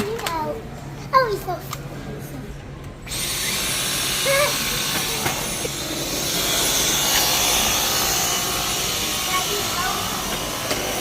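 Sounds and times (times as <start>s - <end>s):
vacuum cleaner running: 3.1s - 11.0s.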